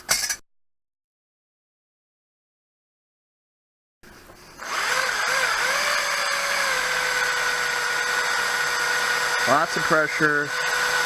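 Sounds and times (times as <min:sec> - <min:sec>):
power drill whining into steel: 0:04.6 - 0:11.0.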